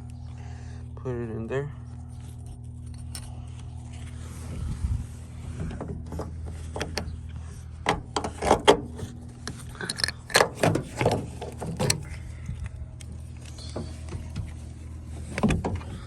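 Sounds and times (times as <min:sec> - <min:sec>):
steady low hum: 0:00.0 - 0:16.0
metal hardware clicking and scraping: 0:02.2 - 0:04.1, 0:05.6 - 0:12.2.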